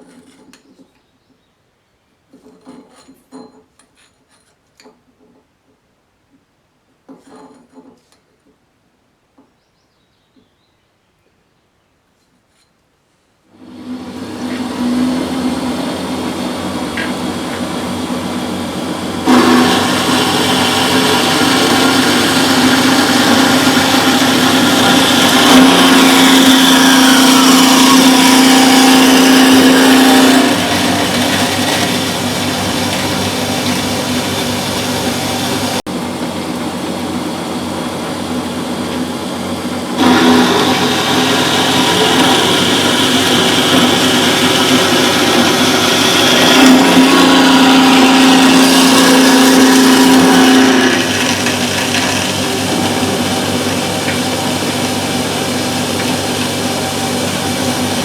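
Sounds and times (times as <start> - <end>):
bandsaw motor hum: 13.6 - 58.0.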